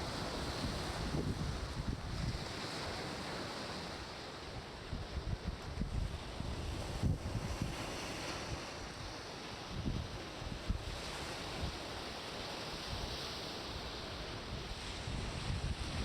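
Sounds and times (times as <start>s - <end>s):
wind buffeting microphone: 0.0s - 2.7s, 4.9s - 8.6s, 14.1s - 16.0s
ocean surf washing on beach: 0.0s - 16.0s.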